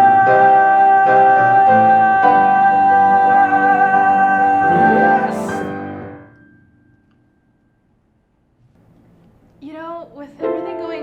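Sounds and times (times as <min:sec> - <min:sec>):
piano accompaniment: 0:00.0 - 0:08.0, 0:10.4 - 0:11.0.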